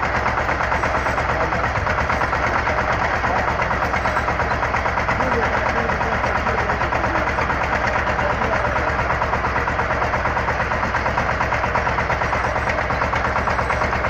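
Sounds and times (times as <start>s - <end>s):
drilling rig engine throbbing: 0.0s - 14.0s.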